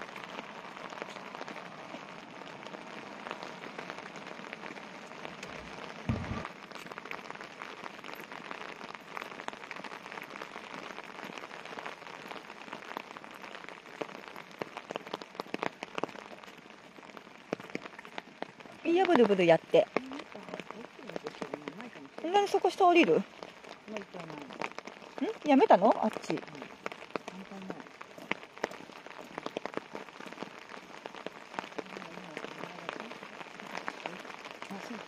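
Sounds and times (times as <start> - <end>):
rain on wet pavement: 0.0 - 35.0
low thump: 6.0 - 6.5.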